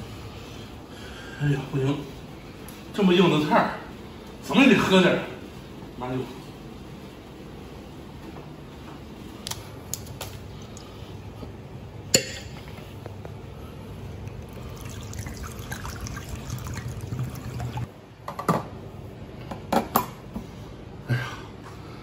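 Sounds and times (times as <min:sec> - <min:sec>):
liquid pouring into bowl: 0:14.2 - 0:17.9.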